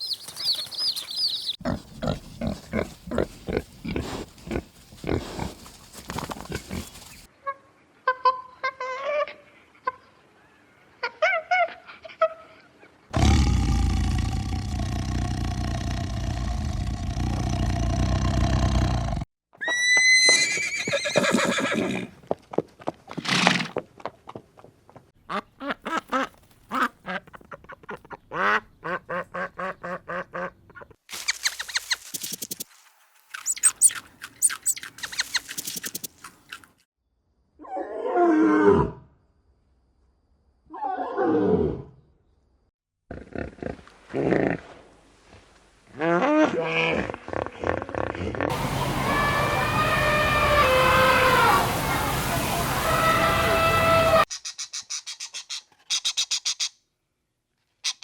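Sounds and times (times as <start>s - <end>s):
farm animals calling: 0.0s - 12.6s, 33.3s - 35.9s, 48.5s - 56.7s.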